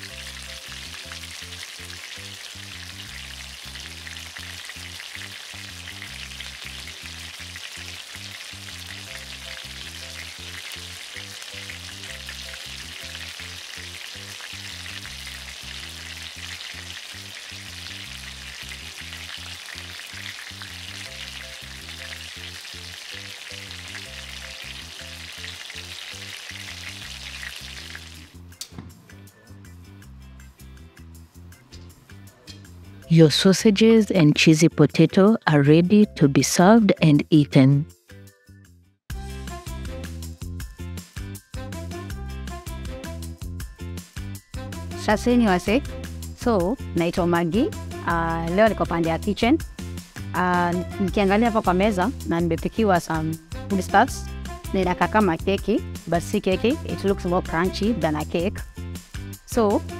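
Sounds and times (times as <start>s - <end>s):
sausages sizzling in oil: 0.0s - 28.4s.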